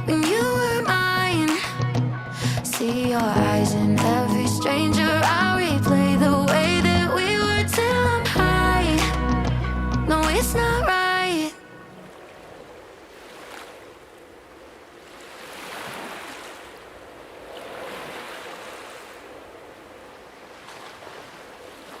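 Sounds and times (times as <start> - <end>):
sea water washing: 11.4 - 22.0.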